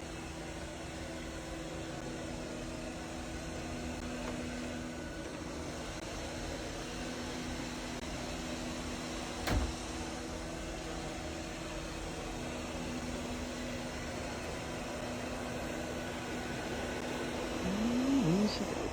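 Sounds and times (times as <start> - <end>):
robot vacuum running: 9.8 - 18.9.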